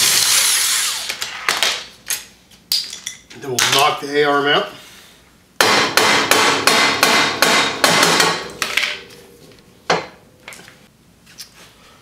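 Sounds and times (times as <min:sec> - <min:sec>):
hammer striking steel: 0:05.6 - 0:08.8.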